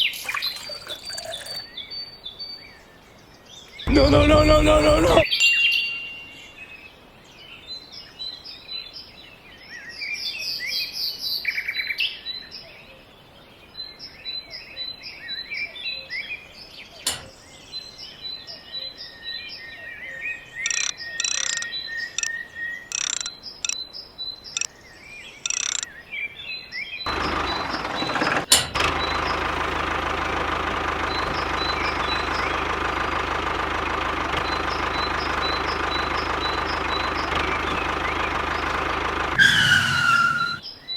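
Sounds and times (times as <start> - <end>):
small birds chirping: 0.0 - 5.3, 13.6 - 40.9
water pump motor running: 0.3 - 1.6, 27.1 - 39.4
sharp clicks: 17.1 - 17.3, 20.6 - 22.3, 22.9 - 23.8, 25.4 - 25.9.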